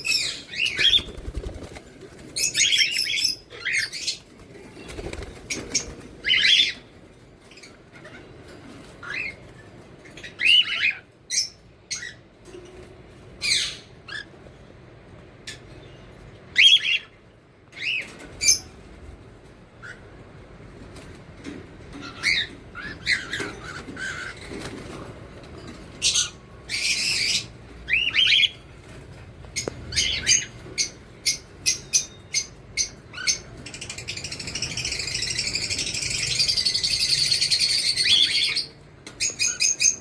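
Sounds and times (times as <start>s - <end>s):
parrots squawking: 22.0s - 24.7s, 26.0s - 28.6s.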